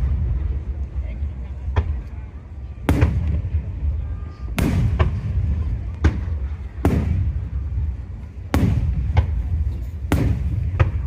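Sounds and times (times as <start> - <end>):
low rolling rumble: 0.0 - 11.0
firework shells booming: 2.8 - 11.0.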